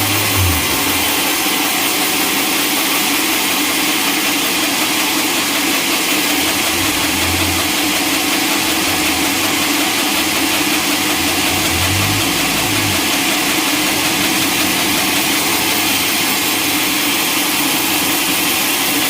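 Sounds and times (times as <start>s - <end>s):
brief lower hum: 0.0s - 1.4s, 6.4s - 16.8s
sawmill machinery humming: 0.0s - 19.0s.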